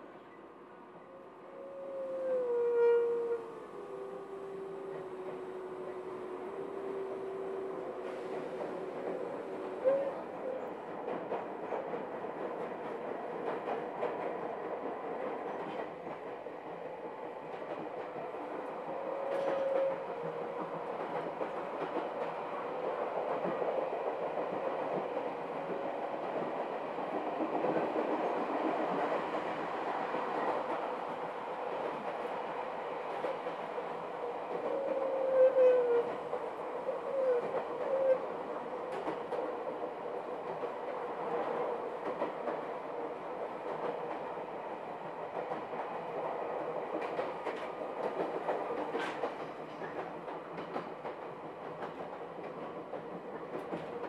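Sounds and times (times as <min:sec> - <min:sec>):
train wheels rumbling on rail: 0:01.0 - 0:54.0
clickety-clack over rail joints: 0:04.5 - 0:54.0.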